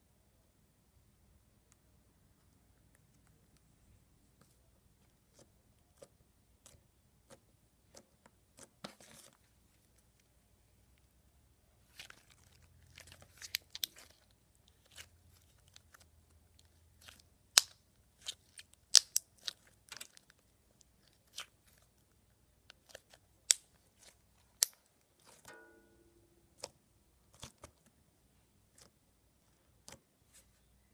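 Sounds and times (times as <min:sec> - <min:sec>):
slime popping and clicking: 0:17.5 - 0:20.1.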